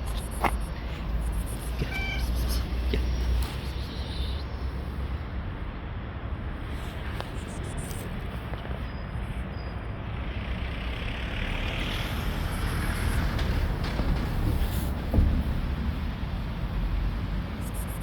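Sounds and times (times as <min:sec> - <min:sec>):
vehicle passing: 0:09.8 - 0:18.0
thump: 0:13.8 - 0:15.9.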